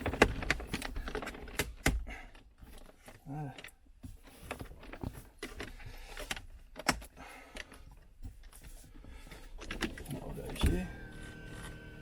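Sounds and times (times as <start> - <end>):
hard objects clicking and knocking: 0.0 - 3.8.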